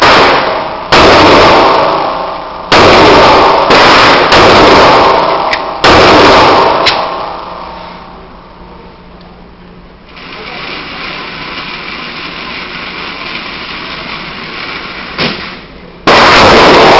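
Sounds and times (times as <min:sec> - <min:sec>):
pistol shots echoing: 0:00.0 - 0:07.8, 0:15.1 - 0:16.9.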